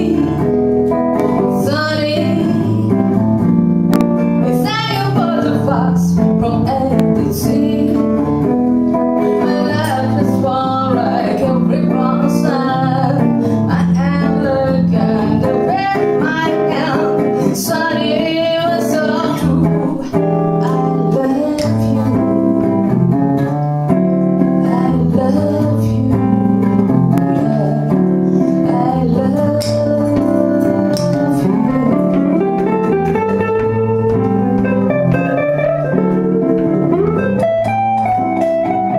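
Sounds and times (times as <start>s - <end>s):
person singing: 0.0s - 0.5s, 9.2s - 22.5s, 24.6s - 26.5s, 27.2s - 34.3s
live band with guitar: 0.0s - 38.9s.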